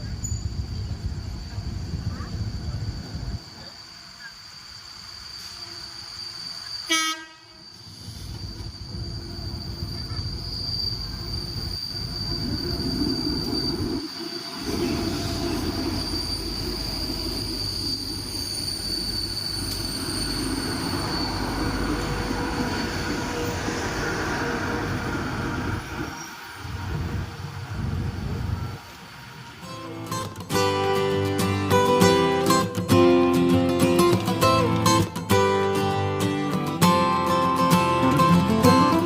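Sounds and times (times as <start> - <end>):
train wheels rumbling on rail: 0.0 - 39.0
train horn blast: 6.9 - 7.6.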